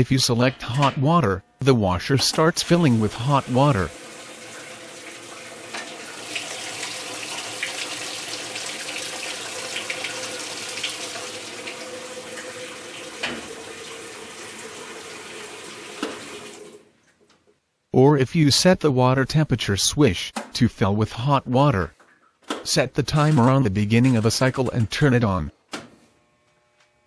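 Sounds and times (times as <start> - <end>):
water pouring into washer tub: 2.5 - 16.9.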